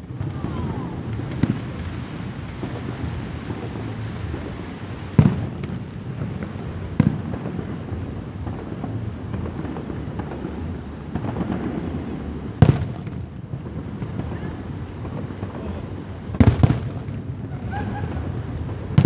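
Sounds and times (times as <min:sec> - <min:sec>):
fireworks booming: 0:00.0 - 0:19.0
fireworks crackles: 0:00.0 - 0:19.0.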